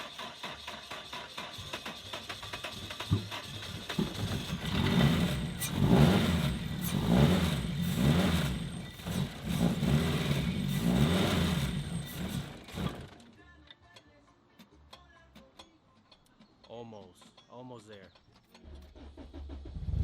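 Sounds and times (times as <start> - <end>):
car engine revving: 3.8 - 13.1.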